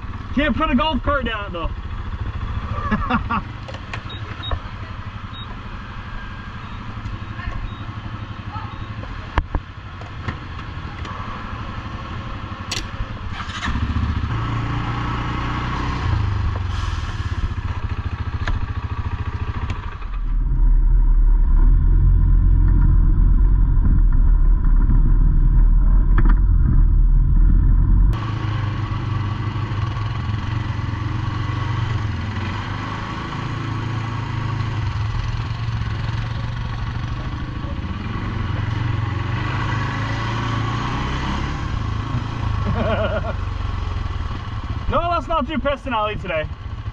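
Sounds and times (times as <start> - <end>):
atv engine running: 0.0 - 16.6, 17.6 - 46.9
loud muffled low rumble: 20.2 - 28.2.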